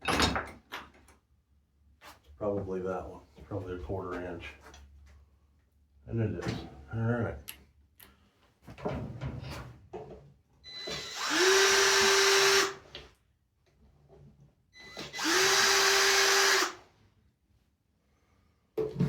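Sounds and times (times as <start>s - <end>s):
power drill running: 10.7s - 12.8s, 14.8s - 16.8s.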